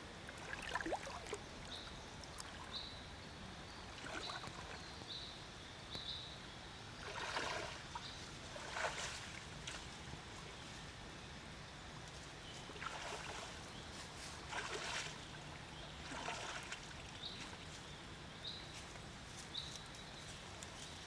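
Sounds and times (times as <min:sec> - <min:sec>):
river water splashes: 0:00.2 - 0:02.8, 0:03.8 - 0:04.9, 0:06.9 - 0:11.1, 0:12.5 - 0:19.3.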